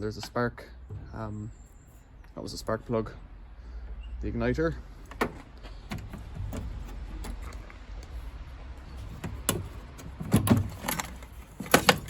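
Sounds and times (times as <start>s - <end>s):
metal parts clicking and clattering: 8.8s - 12.0s.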